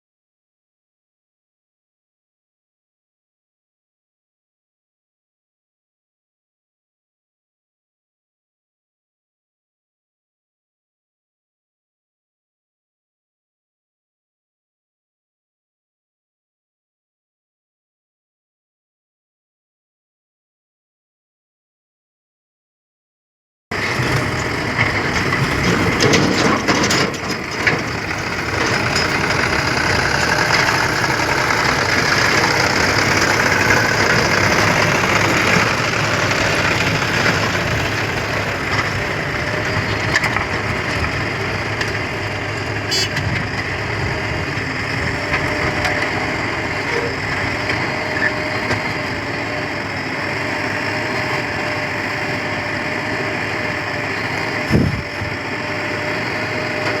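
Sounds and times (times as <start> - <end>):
diesel engine under load: 23.7 - 57.0
digging and loading earth: 23.7 - 57.0.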